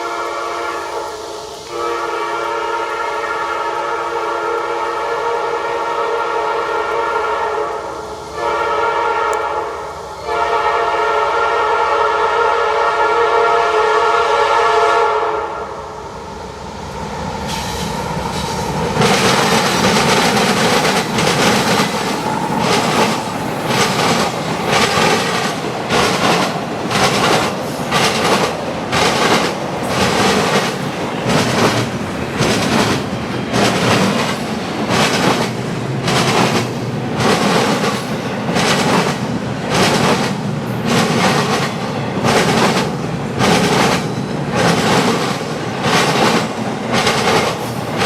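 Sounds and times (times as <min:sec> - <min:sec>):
locomotive air horn blast: 0:00.0 - 0:15.9
train cars rumbling past: 0:00.0 - 0:48.0
wheels clicking over rail joints: 0:18.3 - 0:48.0.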